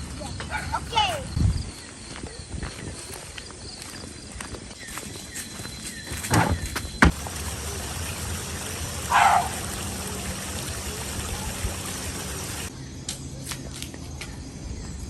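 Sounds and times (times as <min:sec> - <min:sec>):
water running: 0:07.0 - 0:12.7.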